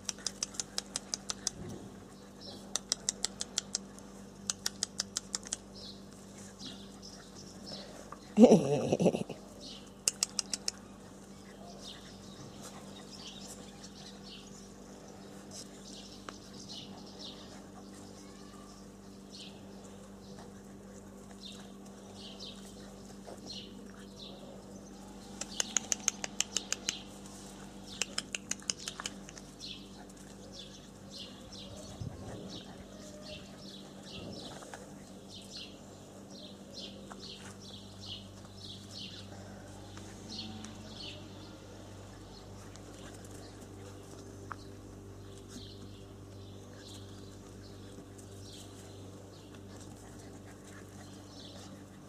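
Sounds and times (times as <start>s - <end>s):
low steady hum: 0.0s - 52.0s
small birds chirping: 0.0s - 52.0s
rapid sharp clicks: 25.4s - 27.1s.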